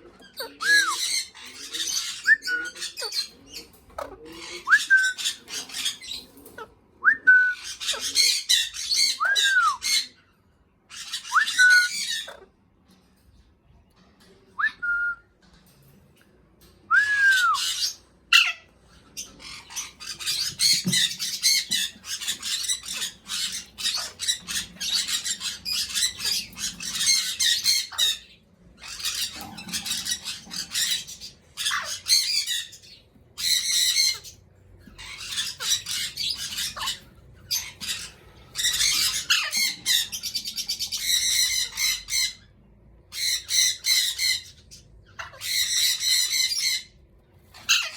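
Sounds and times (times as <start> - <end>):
parrots screeching: 0.2 - 6.7, 7.6 - 10.2, 10.9 - 12.6, 17.3 - 47.9
parrot whistled calls: 4.6 - 6.2, 7.0 - 10.1, 10.9 - 12.4, 16.9 - 18.6.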